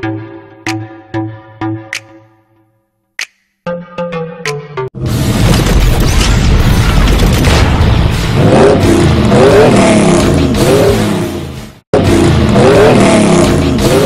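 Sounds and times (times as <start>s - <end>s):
car engine revving hard: 8.4s - 14.0s.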